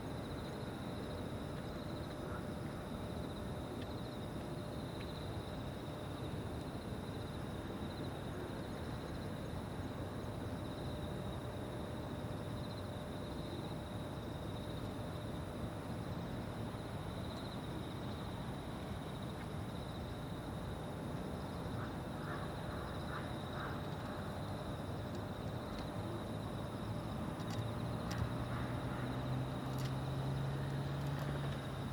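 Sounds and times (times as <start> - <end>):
insects chirring: 0.0 - 31.9
distant background noise: 21.8 - 31.9.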